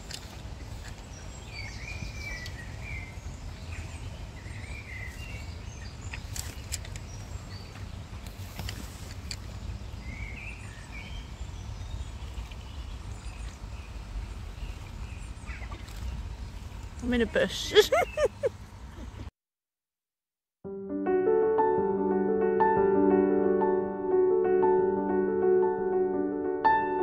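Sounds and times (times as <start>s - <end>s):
small birds chirping and singing: 0.0s - 19.2s.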